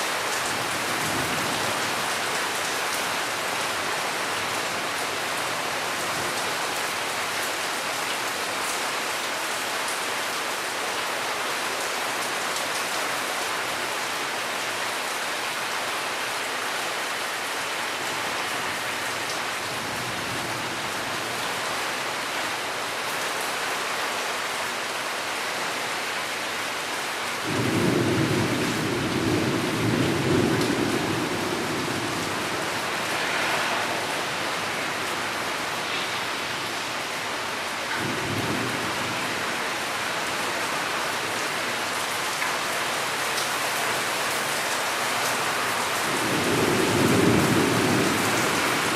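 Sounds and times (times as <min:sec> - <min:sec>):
steady rain: 0:00.0 - 0:48.9
thunder rumbling: 0:27.5 - 0:37.2.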